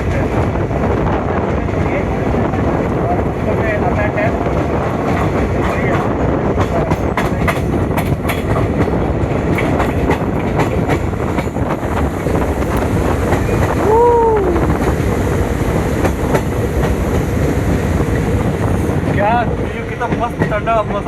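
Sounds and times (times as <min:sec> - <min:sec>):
train rumbling on rails: 0:00.0 - 0:21.0
wheels clicking over rail joints: 0:04.9 - 0:13.8.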